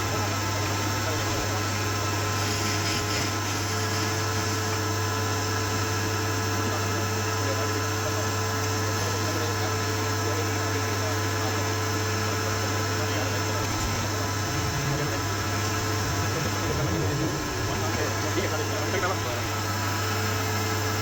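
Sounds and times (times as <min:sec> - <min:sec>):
motor humming: 0:12.6 - 0:21.0.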